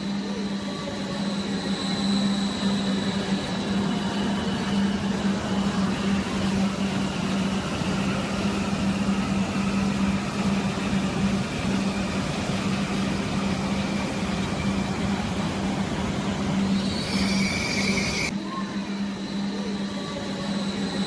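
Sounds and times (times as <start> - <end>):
faint high whine: 0.0 - 21.0
high-speed train passing: 0.0 - 21.0.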